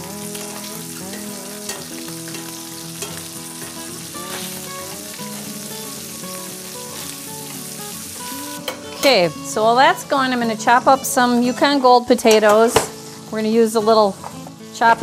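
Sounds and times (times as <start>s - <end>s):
fish and bacon sizzling: 0.0s - 15.0s
soft instrumental music: 0.0s - 15.0s
metal tongs tapping and scraping: 1.1s - 3.8s, 8.6s - 9.2s.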